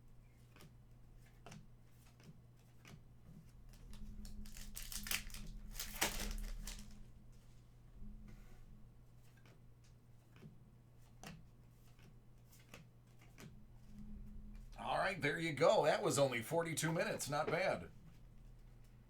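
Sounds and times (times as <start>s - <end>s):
low electrical hum: 3.1s - 10.1s, 12.2s - 19.0s
packaging crinkling and rustling: 3.7s - 7.1s.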